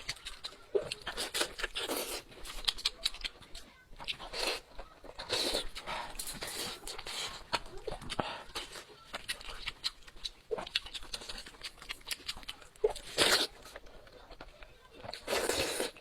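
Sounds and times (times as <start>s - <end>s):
slurping: 0.0s - 16.0s
wet chewing and mouth smacks: 0.0s - 16.0s.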